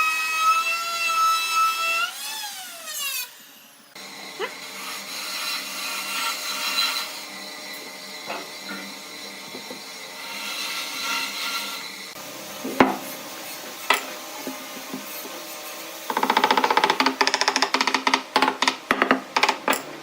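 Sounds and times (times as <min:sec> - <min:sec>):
hand tool scraping wood: 0:12.6 - 0:19.8.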